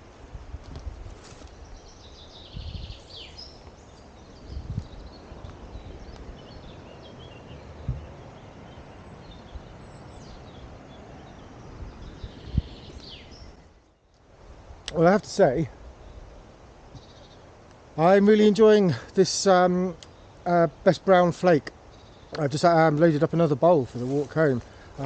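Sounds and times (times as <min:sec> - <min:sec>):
small birds chirping: 0:01.3 - 0:25.0
low thumps and rumble: 0:07.8 - 0:08.1.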